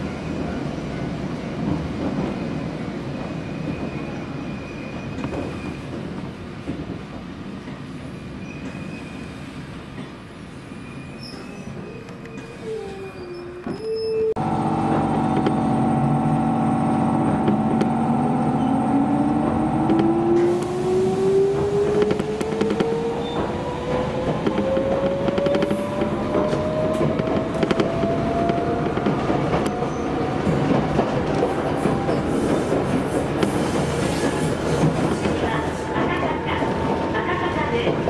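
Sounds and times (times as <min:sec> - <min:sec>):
train wheel and rail noise: 0:00.0 - 0:38.0
brief wheel squeal: 0:08.4 - 0:09.4, 0:10.6 - 0:14.4.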